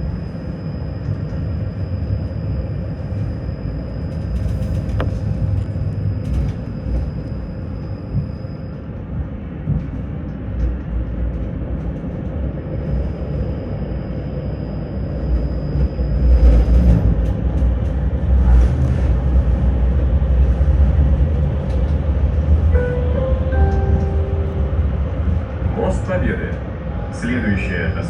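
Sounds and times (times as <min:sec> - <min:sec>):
tram wheels rumbling on track: 0:00.0 - 0:13.4, 0:15.2 - 0:28.0
electronic chime of stepped tones: 0:22.8 - 0:25.2.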